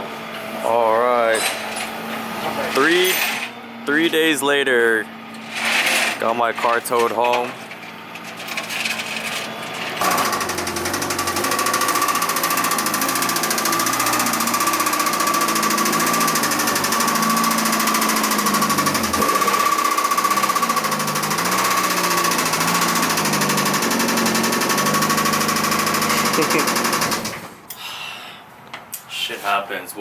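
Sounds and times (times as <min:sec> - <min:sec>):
engine whine: 0:00.0 - 0:27.7
engine knocking clatter: 0:10.0 - 0:27.3.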